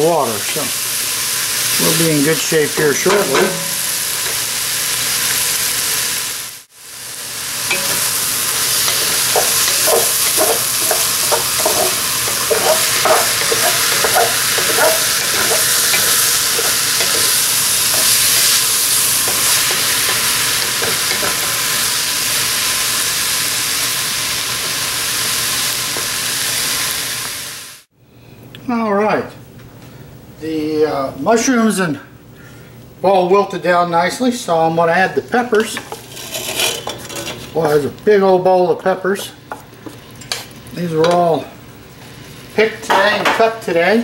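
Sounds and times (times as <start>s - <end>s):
mushrooms and onions sizzling: 0.0s - 27.9s, 33.0s - 44.0s
wooden spatula scraping: 7.7s - 22.0s, 35.5s - 37.9s.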